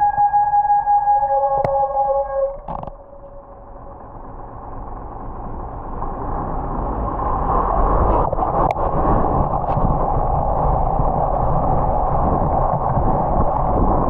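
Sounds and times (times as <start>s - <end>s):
traffic on wet roads: 3.9s - 14.0s.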